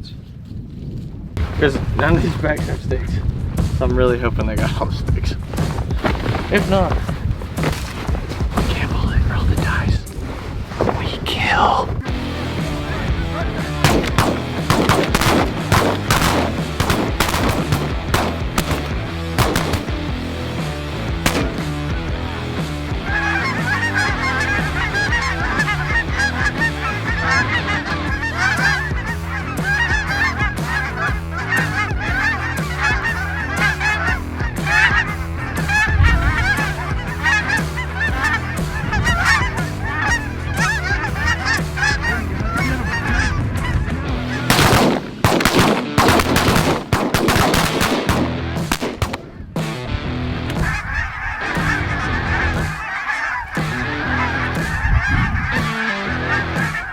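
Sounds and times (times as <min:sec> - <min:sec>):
flock of geese honking: 0:12.2 - 0:48.4, 0:50.4 - 0:56.9.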